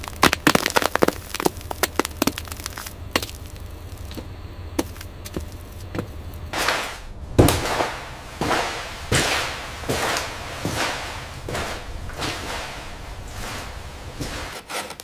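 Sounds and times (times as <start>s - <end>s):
swishing sweeps: 6.5s - 14.6s.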